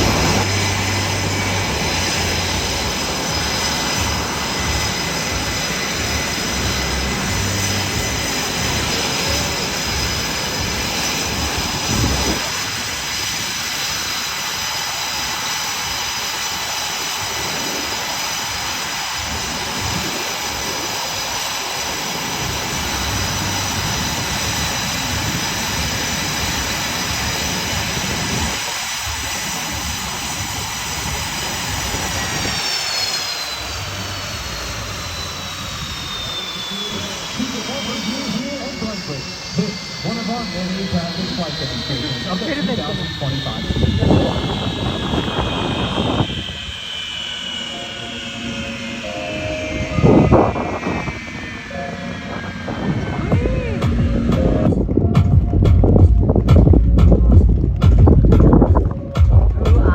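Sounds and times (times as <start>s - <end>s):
jet engine roar with whine: 0.0s - 59.9s.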